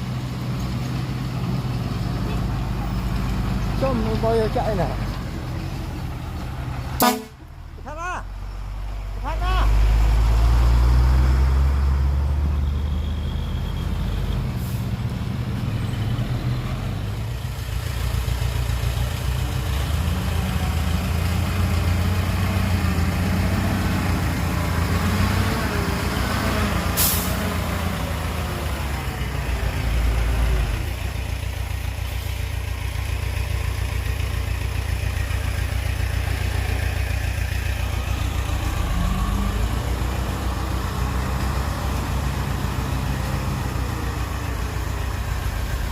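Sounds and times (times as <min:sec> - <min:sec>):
diesel truck engine running: 0:00.0 - 0:45.9
air brake hiss: 0:27.0 - 0:27.5.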